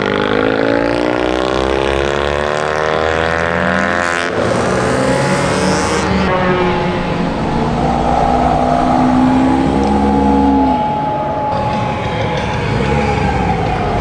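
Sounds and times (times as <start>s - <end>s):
car engine accelerating: 4.5s - 11.6s.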